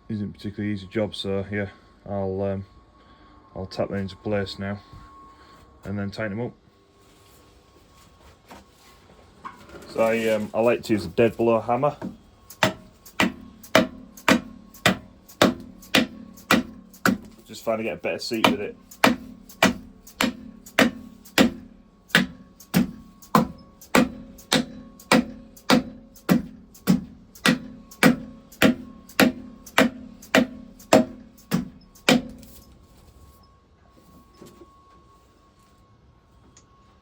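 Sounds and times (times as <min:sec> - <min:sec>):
dead blow hammer tapping: 0:12.0 - 0:32.6.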